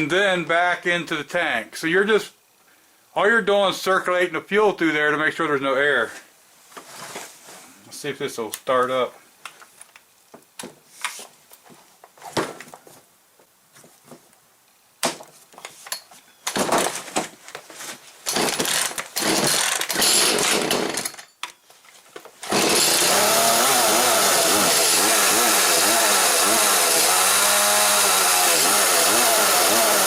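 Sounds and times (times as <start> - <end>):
chainsaw engine running: 18.3 - 21.2, 22.4 - 30.0
starter rope pulling: 18.3 - 21.2, 22.4 - 30.0.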